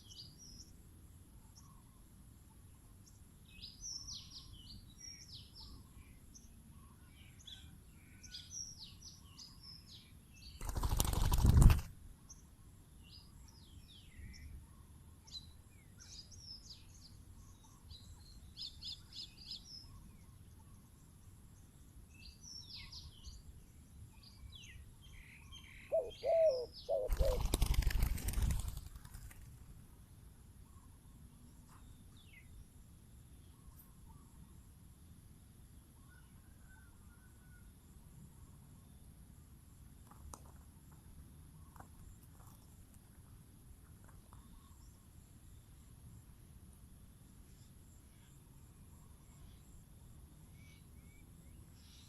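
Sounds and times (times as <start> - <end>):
small birds chirping: 0.0 - 29.6, 40.0 - 45.8
wings flapping: 10.6 - 12.0, 27.0 - 29.8.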